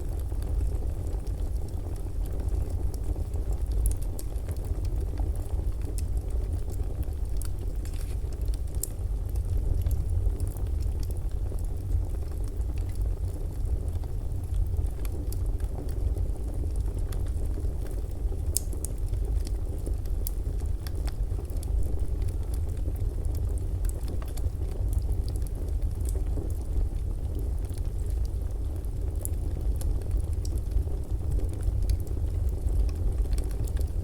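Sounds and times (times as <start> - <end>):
fire crackling and popping: 0.0 - 34.0.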